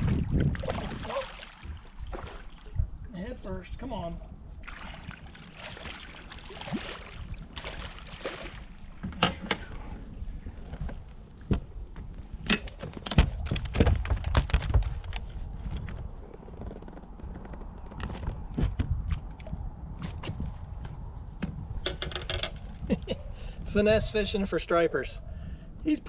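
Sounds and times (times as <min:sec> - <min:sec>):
water splashing: 0:00.0 - 0:02.9, 0:04.6 - 0:09.0.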